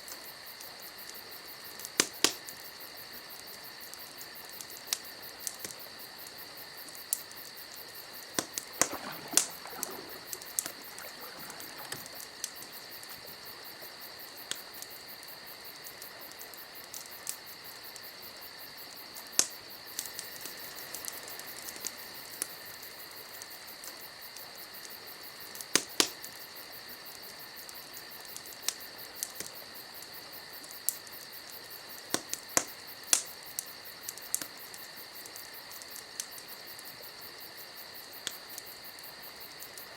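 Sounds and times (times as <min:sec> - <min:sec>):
campfire crackling: 0:00.0 - 0:26.5, 0:27.1 - 0:39.8
sharp pops of fire: 0:01.9 - 0:02.5, 0:08.3 - 0:13.4, 0:25.6 - 0:26.2, 0:32.0 - 0:34.8.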